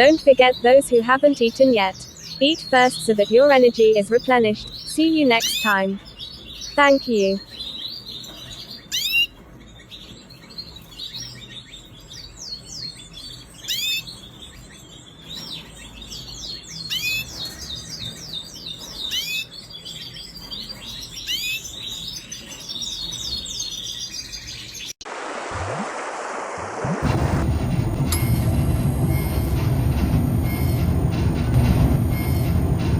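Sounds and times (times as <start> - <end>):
canary singing: 0.0 - 25.0
rushing noise with low rumble: 25.2 - 32.9.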